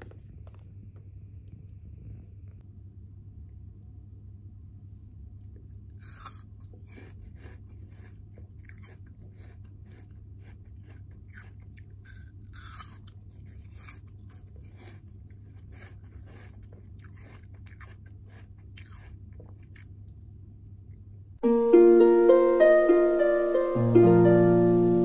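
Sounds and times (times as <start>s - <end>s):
low steady hum: 0.0s - 25.0s
apple crunching and chewing: 5.4s - 21.2s.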